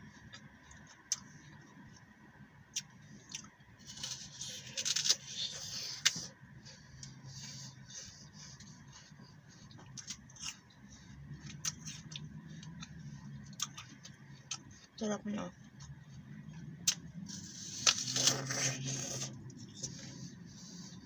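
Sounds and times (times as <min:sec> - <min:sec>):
chewing with wet clicks: 0:00.3 - 0:02.0, 0:02.7 - 0:03.6, 0:11.4 - 0:15.0, 0:15.6 - 0:17.2
apple crunching bite: 0:02.8 - 0:06.3, 0:11.4 - 0:14.7, 0:16.8 - 0:19.4.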